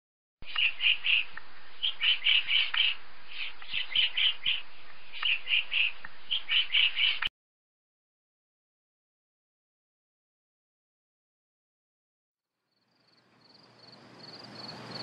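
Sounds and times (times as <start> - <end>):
woodpecker calling: 0.4 - 7.3.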